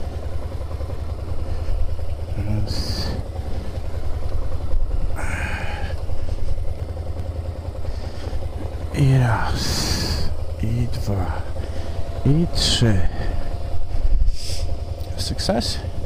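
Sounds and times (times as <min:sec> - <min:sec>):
motorcycle engine rumbling: 0:00.0 - 0:16.0.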